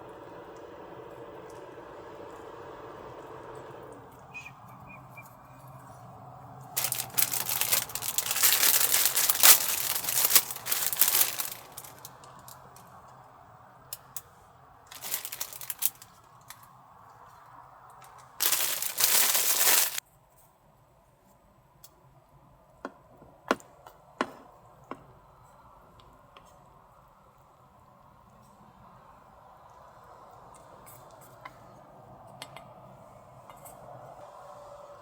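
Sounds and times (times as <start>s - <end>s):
packaging rustling and crinkling: 6.8s - 12.5s, 14.9s - 16.2s, 18.4s - 20.0s.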